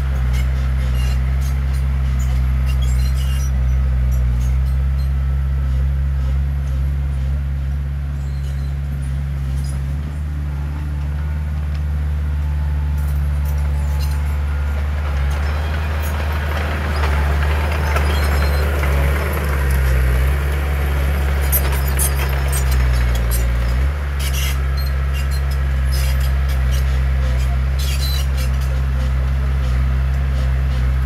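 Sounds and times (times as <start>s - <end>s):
heavy diesel engine running: 0.0s - 31.0s
scraping rattling noise: 13.0s - 28.8s.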